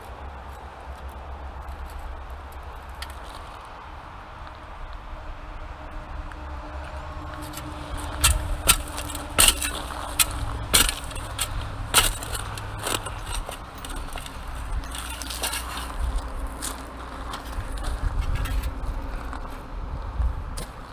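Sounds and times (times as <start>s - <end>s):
steady low rumble: 0.0s - 20.9s
hand scraping sand and gravel: 7.4s - 19.7s.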